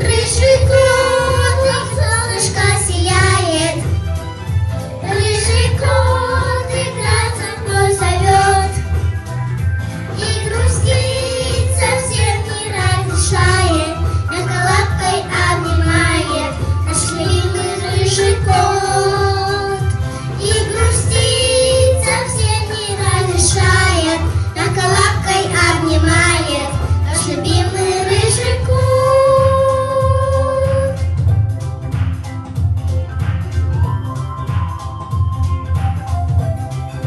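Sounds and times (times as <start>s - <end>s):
girls singing pop song: 0.0s - 4.0s, 5.0s - 9.1s, 10.1s - 31.3s
backing music with bass: 0.0s - 37.0s.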